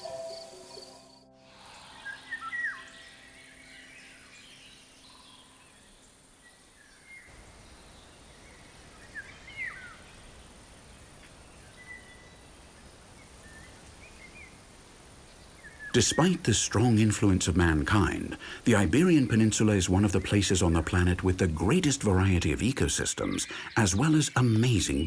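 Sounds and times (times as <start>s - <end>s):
bird chirps: 0.0s - 10.4s, 15.3s - 25.0s
faint outdoor ambience: 0.0s - 25.0s.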